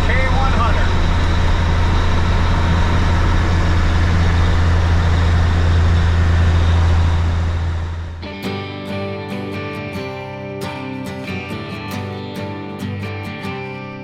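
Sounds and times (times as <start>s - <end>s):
truck diesel engine drone: 0.0s - 9.2s
acoustic guitar music: 0.0s - 14.0s.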